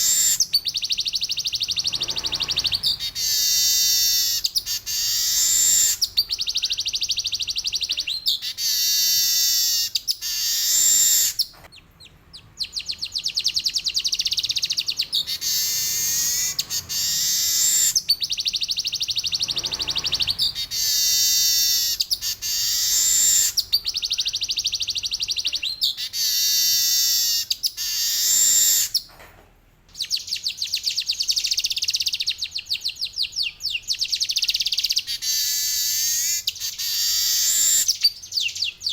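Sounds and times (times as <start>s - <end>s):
bird singing buzzy trills: 0.0s - 29.1s, 29.9s - 38.9s.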